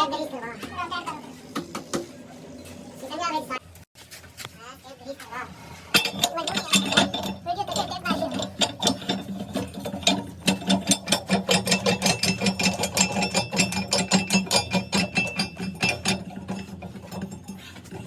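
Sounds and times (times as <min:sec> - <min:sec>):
rapid mechanical tapping: 0:06.0 - 0:18.0.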